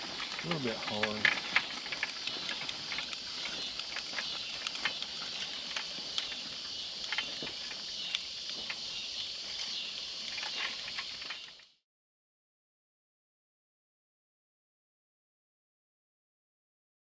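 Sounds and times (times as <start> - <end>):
seeder wheels clicking: 0.0 - 11.6
high-pitched insect drone: 2.3 - 11.7.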